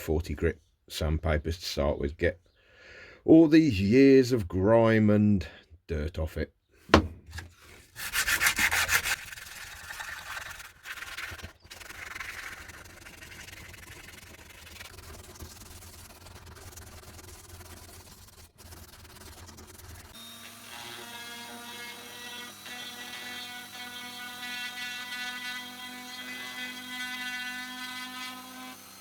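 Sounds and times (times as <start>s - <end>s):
hand sanding wood: 6.9s - 20.2s.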